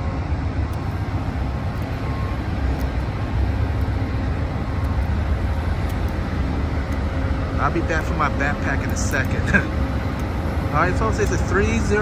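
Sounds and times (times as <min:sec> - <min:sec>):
diesel locomotive idling: 0:00.0 - 0:12.0
faint steady tones: 0:00.0 - 0:12.0.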